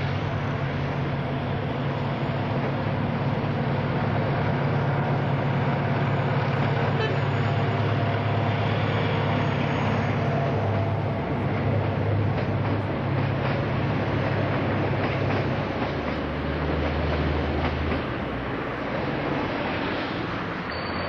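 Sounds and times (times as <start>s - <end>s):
diesel locomotive engine rumble: 0.0s - 21.0s
train carriages rolling: 0.0s - 21.0s
wheels clicking over rail joints: 10.7s - 18.3s.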